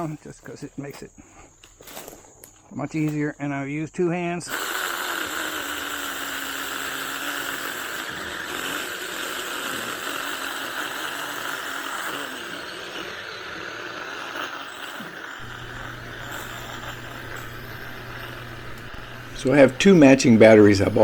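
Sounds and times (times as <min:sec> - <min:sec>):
mini chainsaw cutting wood: 0:04.5 - 0:21.0.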